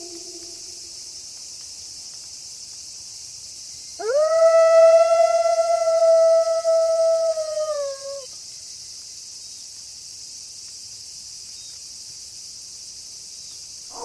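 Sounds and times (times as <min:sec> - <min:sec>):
wolf howling: 0:00.0 - 0:00.8, 0:04.0 - 0:08.2
crickets chirring: 0:00.0 - 0:14.0.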